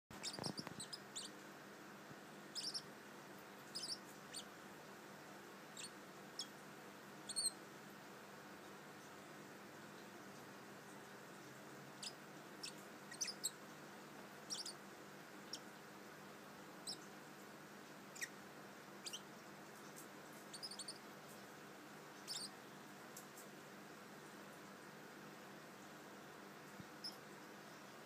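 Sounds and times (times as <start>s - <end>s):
parrot chirping: 0.1s - 1.4s, 2.5s - 2.9s, 3.7s - 4.5s, 5.8s - 6.5s, 7.3s - 7.6s, 12.0s - 13.6s, 14.5s - 14.8s, 16.8s - 17.0s, 18.2s - 18.4s, 19.0s - 19.2s, 20.5s - 21.0s, 22.2s - 22.5s
faint steady hiss: 0.1s - 28.0s.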